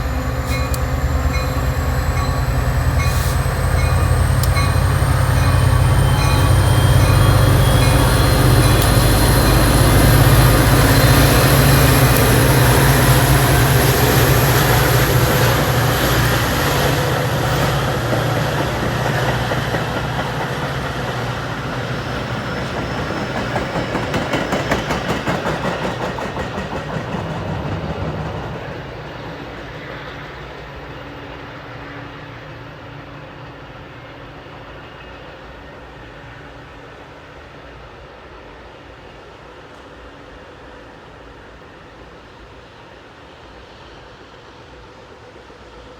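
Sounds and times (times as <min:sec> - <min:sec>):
diesel locomotive engine rumble: 0:00.0 - 0:36.6
train wheels clacking over rail joints: 0:00.1 - 0:30.3.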